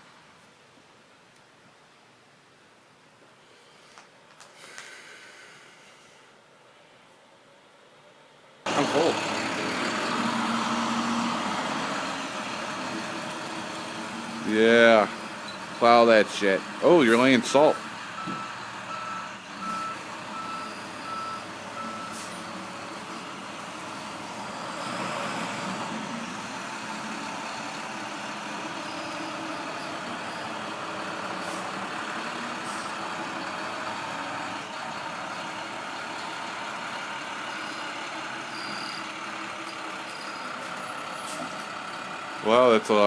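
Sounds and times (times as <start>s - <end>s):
truck reversing alarm beeping: 8.7s - 41.9s
truck engine running: 8.7s - 43.0s.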